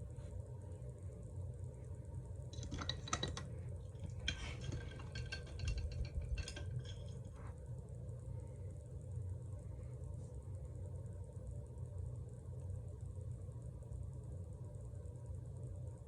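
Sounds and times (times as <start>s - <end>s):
steady low hum: 0.0s - 16.0s
paintbrush clinking in glass cup: 2.6s - 7.4s.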